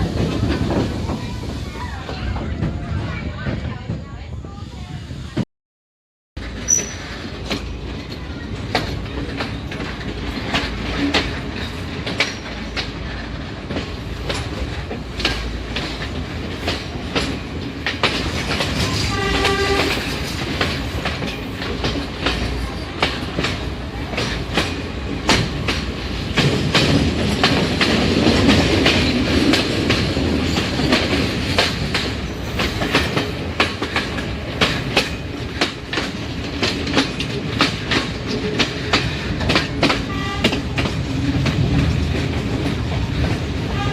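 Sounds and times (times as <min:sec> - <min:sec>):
train wheels clicking over rail joints: 0:06.4 - 0:43.9
train horn: 0:19.0 - 0:20.2, 0:40.1 - 0:40.6, 0:43.7 - 0:43.9.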